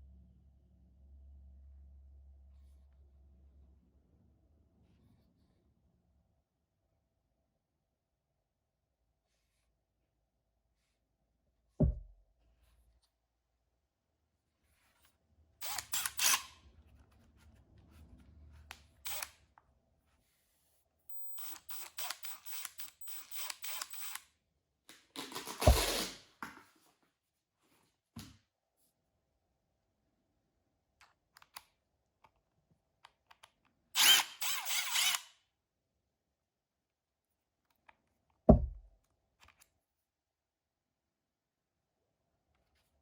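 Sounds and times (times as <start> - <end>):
impact driver bursts: 25.6 - 26.1, 34.0 - 35.3.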